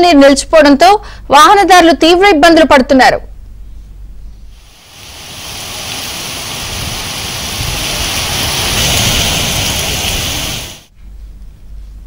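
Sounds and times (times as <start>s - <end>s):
heavy rain pouring: 4.6s - 10.9s.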